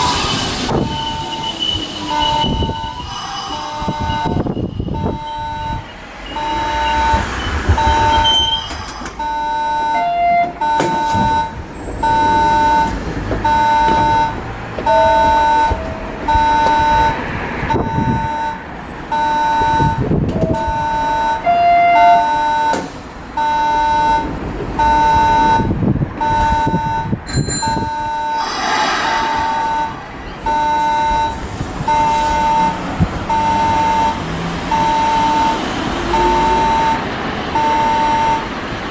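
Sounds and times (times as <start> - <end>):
electronic warning alarm beeping: 0.0 - 38.6
short hiss: 28.4 - 29.6.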